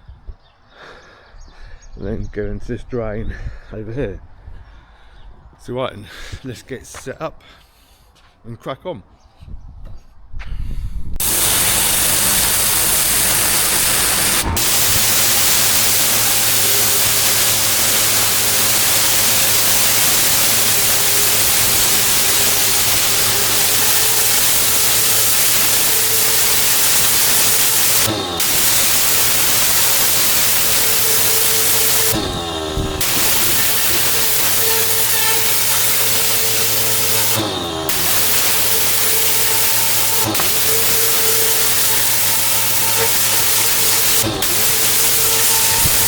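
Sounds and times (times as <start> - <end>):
pressure washer spraying paving: 11.2 - 46.0
steady hum: 11.2 - 46.0.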